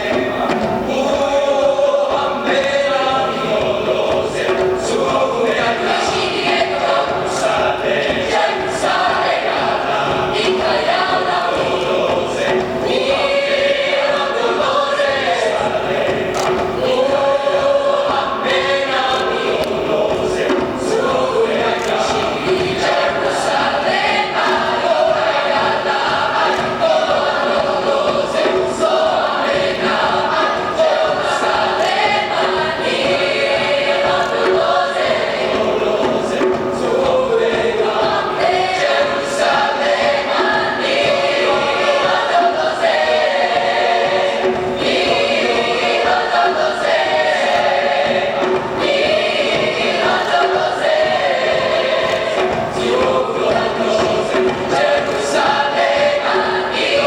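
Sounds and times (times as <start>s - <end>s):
choir singing: 0.0s - 57.0s.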